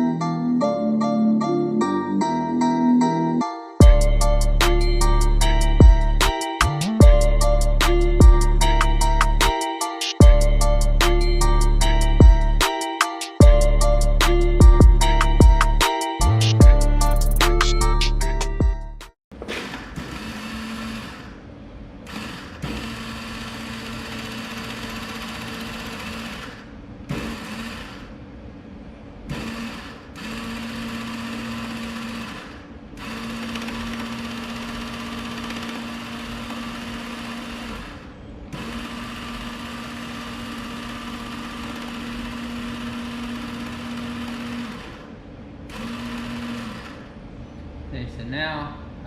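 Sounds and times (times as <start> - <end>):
welder wire-feed motor humming: 19.6 - 28.3, 29.2 - 47.2.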